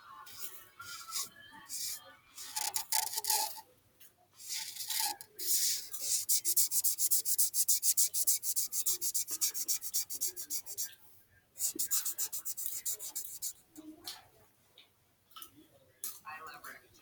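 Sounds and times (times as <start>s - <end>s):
coloring strokes scratching paper: 0.3s - 3.6s, 4.4s - 10.9s, 11.6s - 13.6s.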